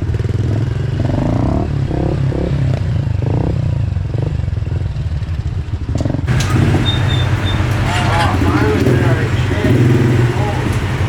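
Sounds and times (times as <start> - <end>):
pit bike engine running: 6.3 - 11.0.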